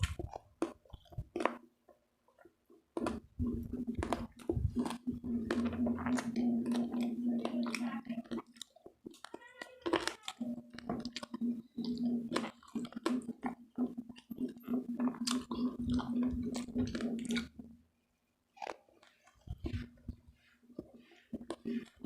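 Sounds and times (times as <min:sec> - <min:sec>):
crunchy chewing: 0:00.0 - 0:01.7, 0:02.3 - 0:17.8, 0:18.5 - 0:22.0.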